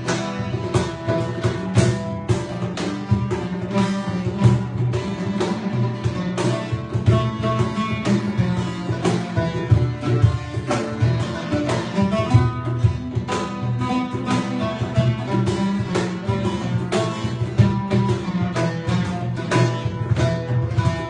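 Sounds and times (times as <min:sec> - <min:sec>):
acoustic guitar: 0:00.0 - 0:21.0
hand drums rhythm: 0:00.0 - 0:21.0
plucked oud: 0:00.0 - 0:21.0.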